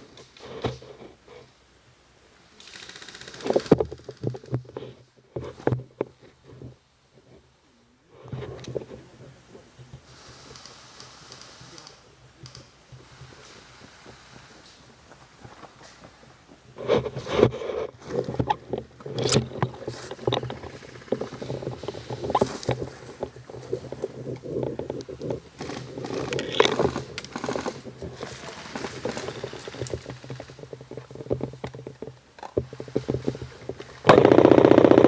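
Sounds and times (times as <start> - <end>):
gear knocks clicks and rustling: 2.7 - 6.7, 15.3 - 35.0.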